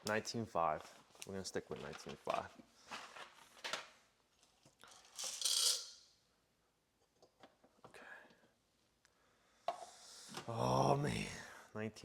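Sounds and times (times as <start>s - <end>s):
coffee beans rattling when poured: 4.9s - 6.0s.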